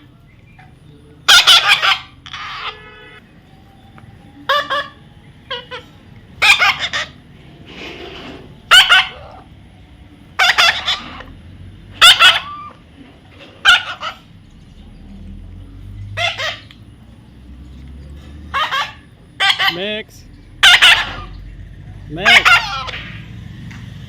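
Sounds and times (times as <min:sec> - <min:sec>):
parrot squawking: 0:00.5 - 0:03.2, 0:04.4 - 0:07.3, 0:08.1 - 0:09.6, 0:10.3 - 0:14.3, 0:16.0 - 0:16.8, 0:18.4 - 0:23.3.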